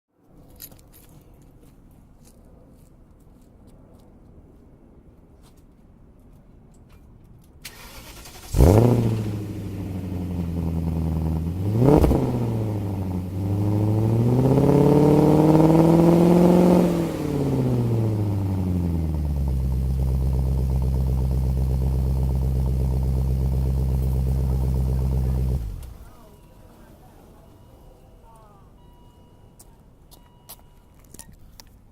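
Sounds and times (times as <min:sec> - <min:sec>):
car engine starting and revving: 0:07.7 - 0:26.2.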